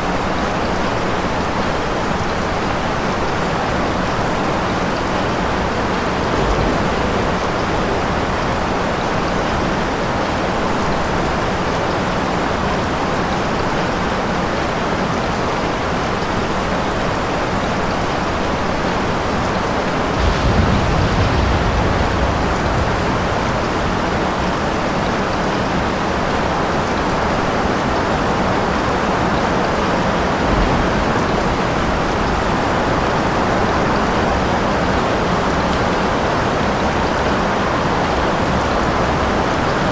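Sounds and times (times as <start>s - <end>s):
heavy rain falling: 0.0s - 39.9s
low thunder rumble: 3.8s - 11.1s, 19.6s - 27.3s, 28.9s - 39.9s.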